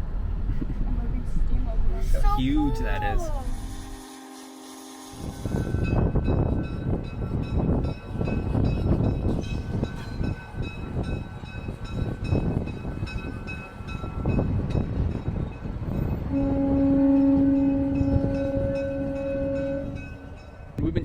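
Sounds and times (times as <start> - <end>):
train horn: 3.4 - 6.7, 16.2 - 20.5.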